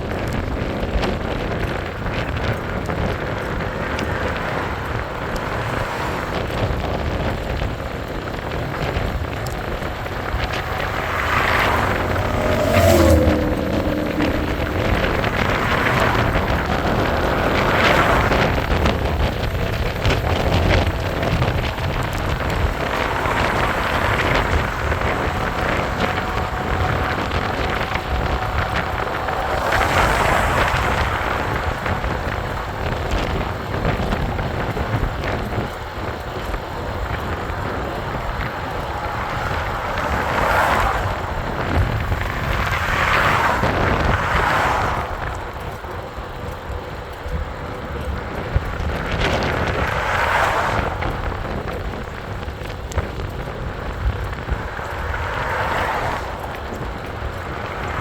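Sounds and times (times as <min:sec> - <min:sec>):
road noise: 0:00.0 - 0:58.0
wind rushing over microphone: 0:00.0 - 0:58.0.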